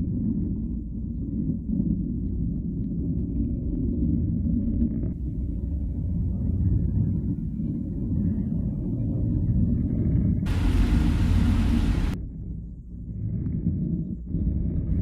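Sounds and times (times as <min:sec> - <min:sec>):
low rumble: 0:05.2 - 0:15.0.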